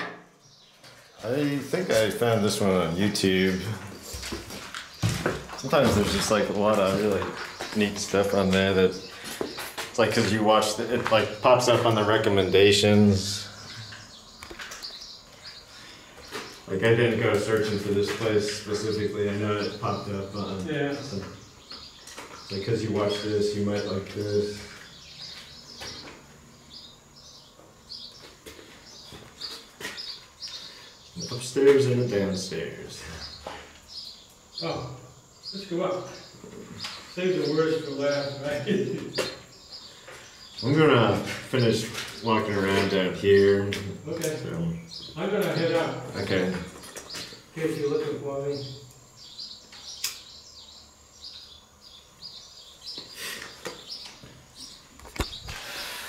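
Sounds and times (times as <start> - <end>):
small bird chirping: 0.4 - 56.0
sharp clicks: 49.7 - 50.3.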